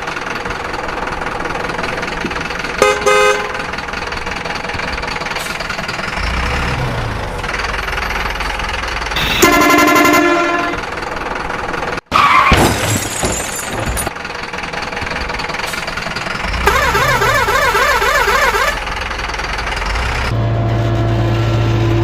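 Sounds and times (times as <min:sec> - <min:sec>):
engine running: 0:00.0 - 0:12.1, 0:12.7 - 0:22.0
vehicle horn honking: 0:02.8 - 0:03.6, 0:09.2 - 0:10.9, 0:16.6 - 0:18.8.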